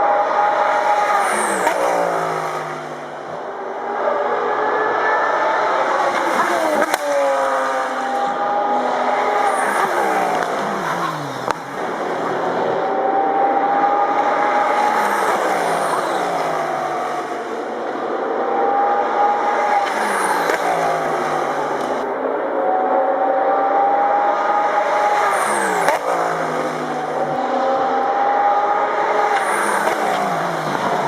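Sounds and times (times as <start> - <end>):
race car engines passing at high revs: 0.0 - 31.0.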